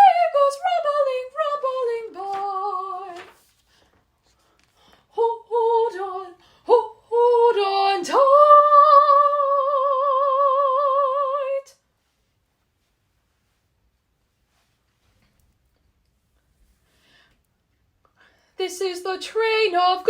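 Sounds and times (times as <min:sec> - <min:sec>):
soprano singing unaccompanied: 0:00.0 - 0:03.5, 0:05.1 - 0:11.8, 0:18.6 - 0:20.0.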